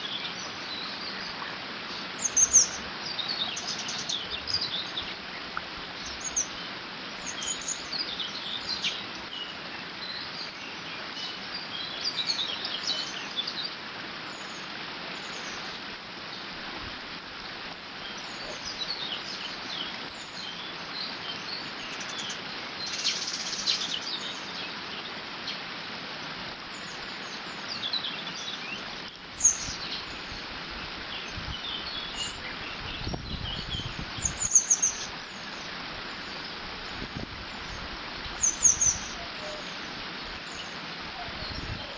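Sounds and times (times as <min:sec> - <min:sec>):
small birds chirping: 0:00.0 - 0:16.5, 0:17.4 - 0:41.9
low wind rumble: 0:29.3 - 0:34.5, 0:36.0 - 0:41.9.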